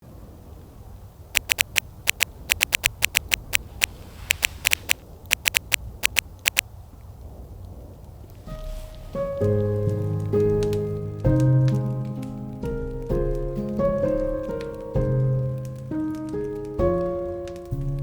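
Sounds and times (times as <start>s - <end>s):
camera shutter clicks: 1.4s - 6.6s.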